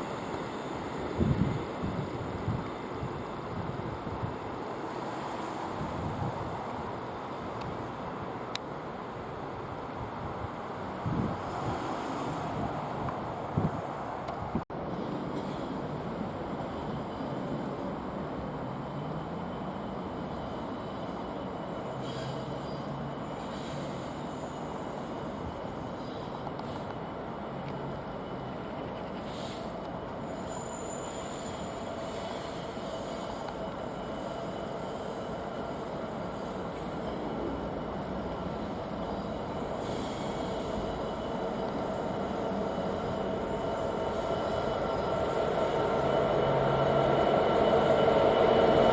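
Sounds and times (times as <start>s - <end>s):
freight train rumbling on rails: 0.0s - 48.9s
high-pitched wheel squeals: 30.2s - 37.3s.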